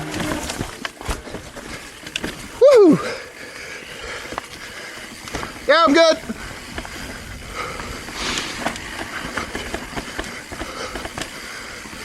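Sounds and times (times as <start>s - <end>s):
bike clicks and knocks: 0.0s - 12.0s
short hiss: 8.1s - 8.9s.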